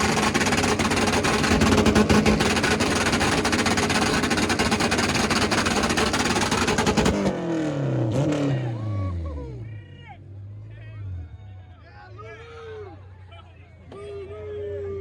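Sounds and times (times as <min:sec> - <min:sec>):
car engine revving with crackle: 0:00.0 - 0:08.6.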